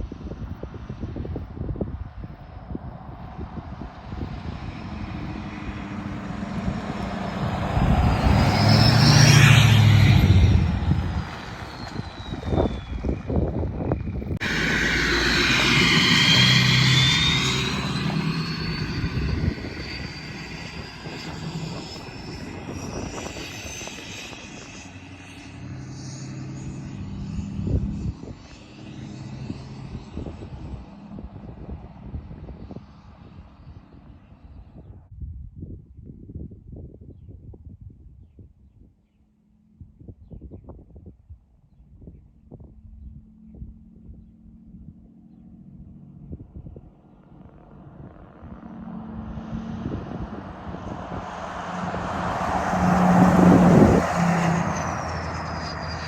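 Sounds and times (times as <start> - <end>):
diesel truck driving past: 3.5 - 31.2, 47.6 - 56.0
turbo whistle: 14.4 - 22.8.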